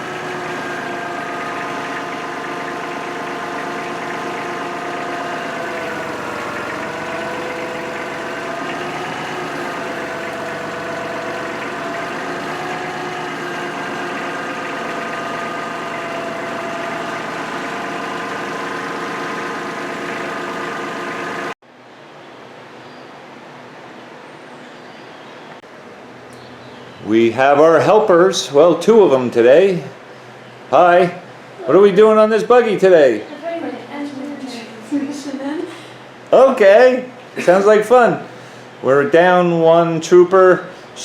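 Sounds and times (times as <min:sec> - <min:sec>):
motor running: 0:00.0 - 0:21.6.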